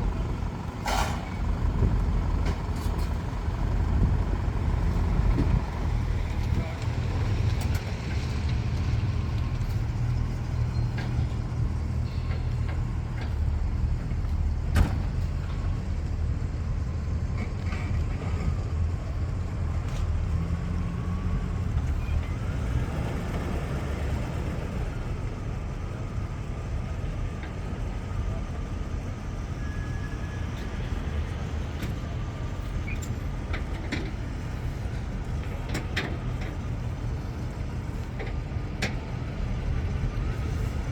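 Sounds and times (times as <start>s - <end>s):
car engines rumbling: 0.0s - 40.9s.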